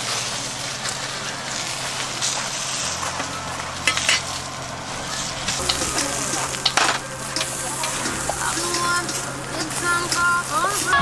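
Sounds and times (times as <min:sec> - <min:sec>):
food sizzling in a frying pan: 0:00.0 - 0:11.0
tongs clinking on metal: 0:03.8 - 0:04.4, 0:05.5 - 0:10.3.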